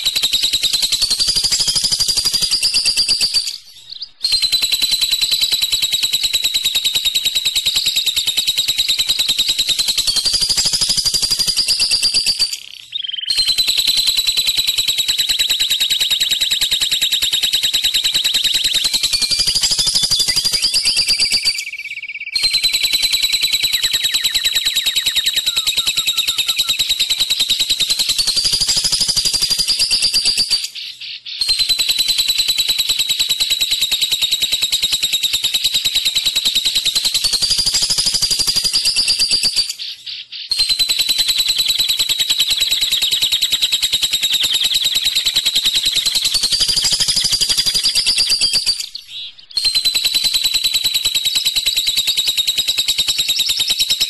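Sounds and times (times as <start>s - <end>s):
lovebird chattering trill: 17.4s - 32.8s, 34.2s - 51.1s.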